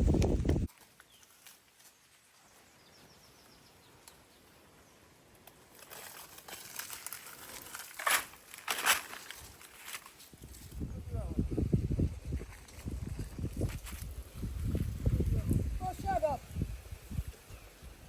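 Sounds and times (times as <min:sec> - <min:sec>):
dry leaves rustling and crinkling: 0:00.0 - 0:02.8, 0:04.5 - 0:10.9.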